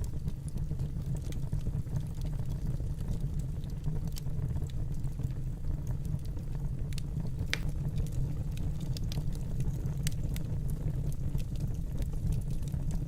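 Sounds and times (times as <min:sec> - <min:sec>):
wood fire crackling: 0:00.0 - 0:13.0
fire pop: 0:06.8 - 0:10.4.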